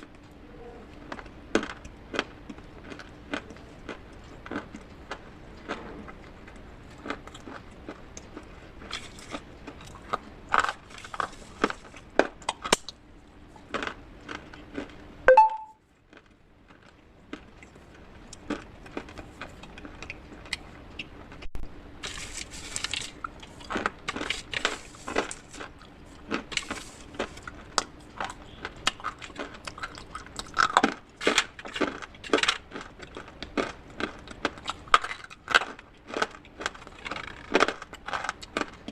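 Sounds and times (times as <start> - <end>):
pottery crunching in a bowl: 0.9 - 13.0, 13.6 - 15.0, 22.0 - 38.9.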